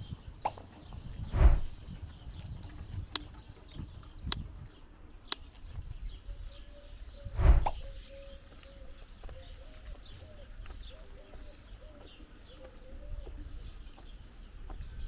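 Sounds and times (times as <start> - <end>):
small birds chirping: 0.0 - 15.0
dove cooing: 6.3 - 14.3.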